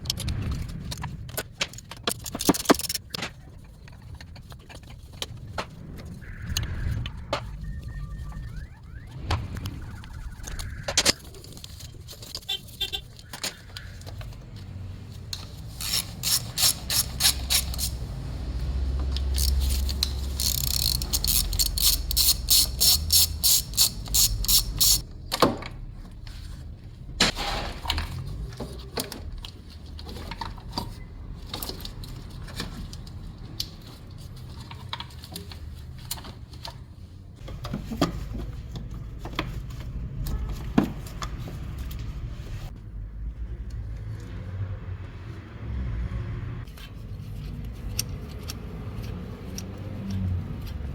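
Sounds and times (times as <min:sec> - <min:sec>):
metal tools clinking: 0:15.2 - 0:25.0
ratchet wrench clicking: 0:15.3 - 0:25.0.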